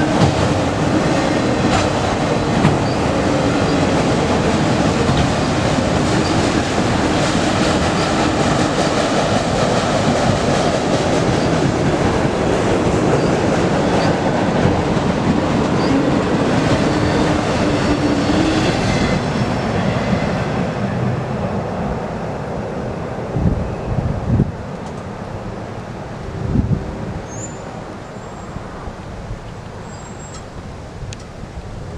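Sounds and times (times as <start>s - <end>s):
train wheels running over rails: 0.0s - 21.8s.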